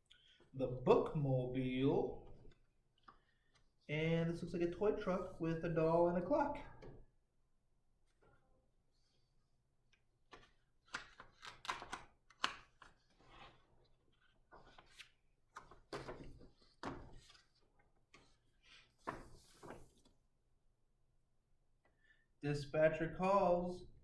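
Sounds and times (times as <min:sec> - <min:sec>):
book pages turning: 0:10.3 - 0:20.1.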